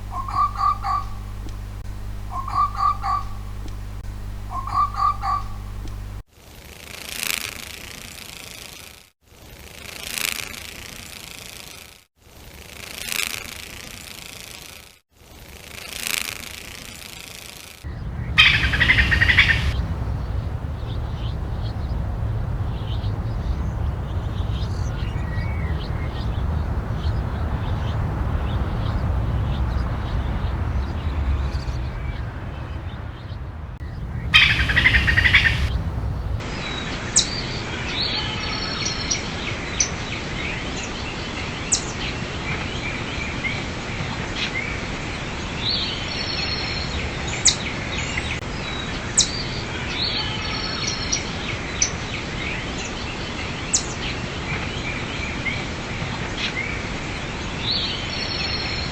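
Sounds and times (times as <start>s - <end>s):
loud bird call: 0.0s - 1.4s, 2.2s - 3.6s, 4.4s - 5.8s, 17.9s - 36.4s
bird chirps: 0.0s - 3.8s, 4.4s - 5.9s, 17.9s - 36.4s
outdoor background noise: 0.0s - 58.9s.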